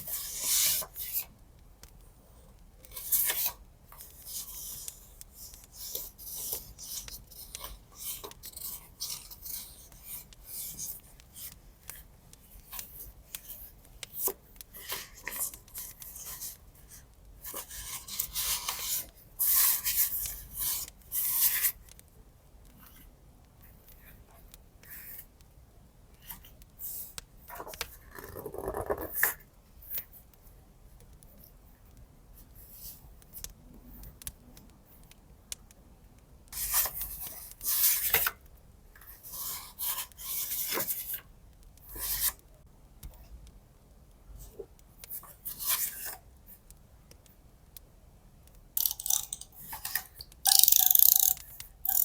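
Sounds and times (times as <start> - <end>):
rubbing and scraping on paper: 0.0 - 1.3, 2.9 - 21.8, 39.1 - 41.2, 41.9 - 42.4.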